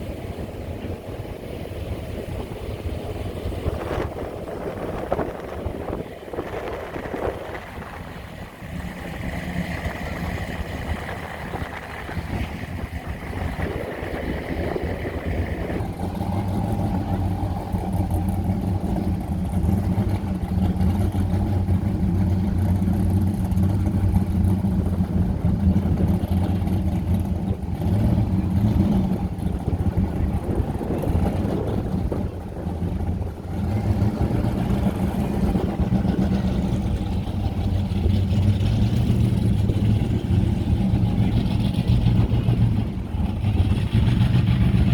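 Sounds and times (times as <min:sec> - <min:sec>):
cars driving slowly past: 0:00.0 - 0:44.9
deep steady engine note: 0:00.0 - 0:44.9.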